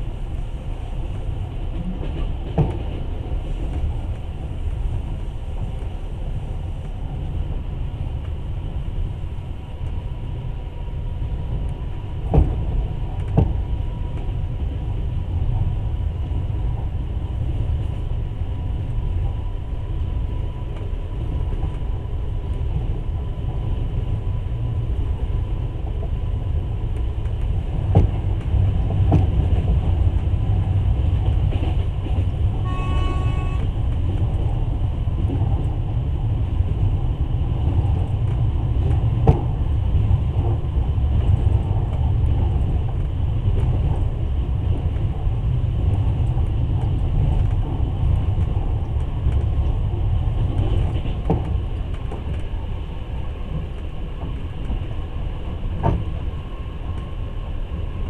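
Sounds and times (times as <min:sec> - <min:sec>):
train wheels rumbling on rails: 0:00.0 - 0:58.0
train horn toot: 0:32.5 - 0:33.8.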